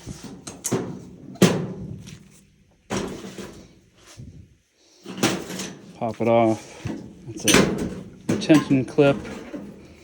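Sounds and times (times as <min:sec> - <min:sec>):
sheet metal clunks and knocks: 0:06.9 - 0:09.7.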